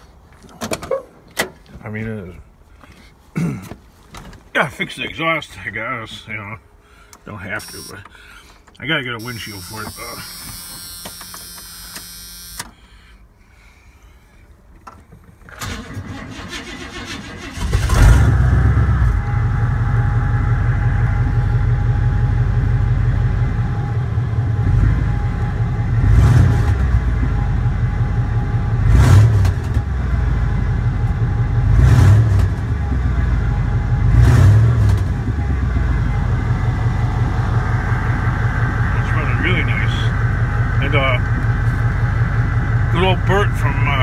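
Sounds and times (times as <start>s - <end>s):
starter cranking engine: 9.2s - 12.8s, 15.3s - 18.4s
engine running and revving: 17.6s - 44.0s.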